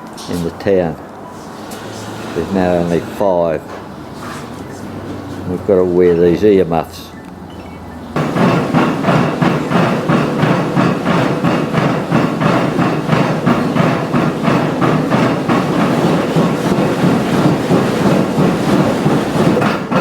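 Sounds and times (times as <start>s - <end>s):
heavy stamps pounding: 8.1s - 20.0s.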